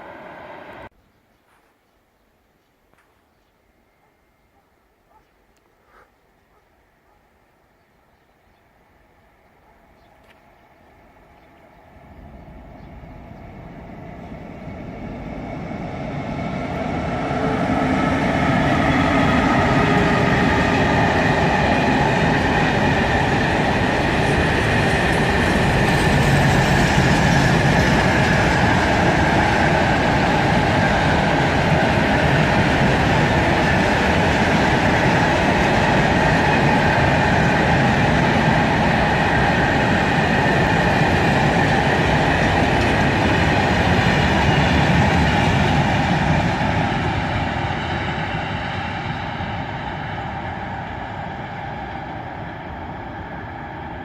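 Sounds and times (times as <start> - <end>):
freight train rumbling past: 0.0 - 0.9, 8.4 - 54.0.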